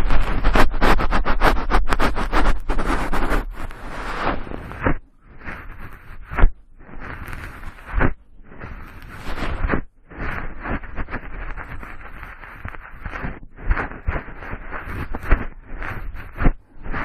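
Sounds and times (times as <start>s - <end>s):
cotton swab rubbing microphone: 0.0s - 17.0s.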